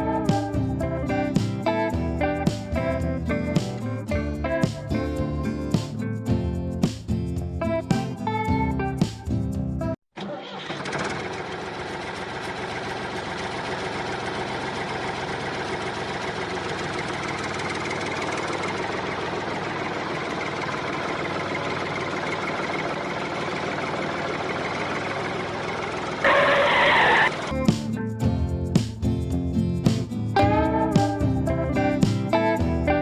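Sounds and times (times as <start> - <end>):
tractor engine running: 10.2 - 30.3.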